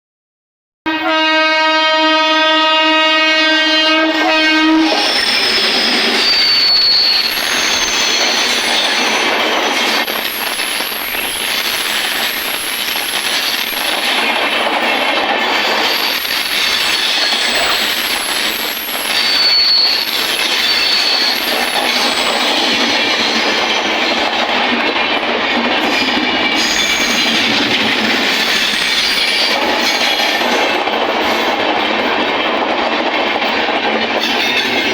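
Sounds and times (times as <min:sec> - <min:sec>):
locomotive horn blast: 0:00.9 - 0:05.2
train coaches rushing past: 0:02.9 - 0:34.9
high-pitched wheel squeals: 0:04.8 - 0:14.0, 0:15.9 - 0:23.7, 0:26.6 - 0:27.5.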